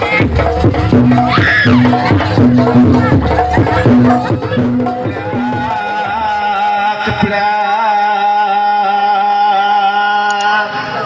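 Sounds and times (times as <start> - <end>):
percussion ensemble: 0.0 - 8.2.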